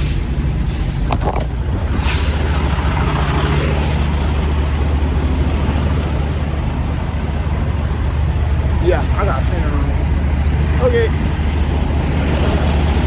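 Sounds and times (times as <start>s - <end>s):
air brake hiss: 0.0s - 1.1s, 2.0s - 2.5s
diesel engine idling: 0.0s - 13.0s.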